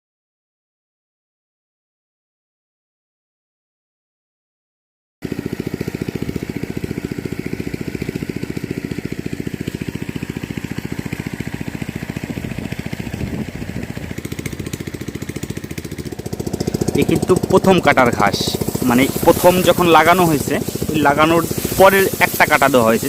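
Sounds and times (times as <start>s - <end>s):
small engine chugging: 5.2s - 23.0s.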